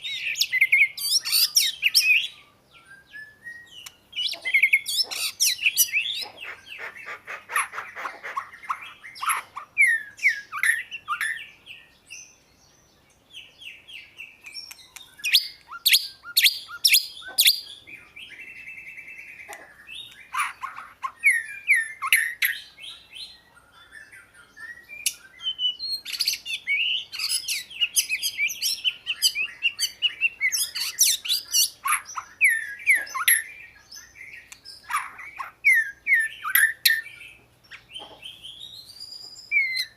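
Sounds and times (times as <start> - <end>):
buzzy bird trill: 0.0 - 12.5, 24.7 - 39.9
bird whistling and chirping: 0.0 - 39.9.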